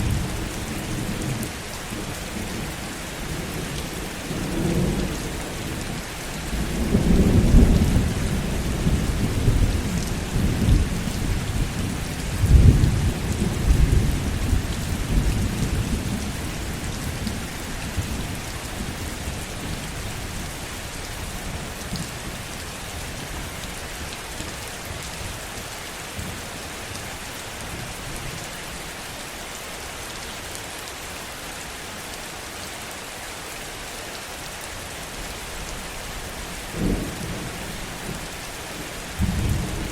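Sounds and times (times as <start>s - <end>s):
heavy rain: 0.0s - 39.9s
thunder rumbling: 36.8s - 39.9s.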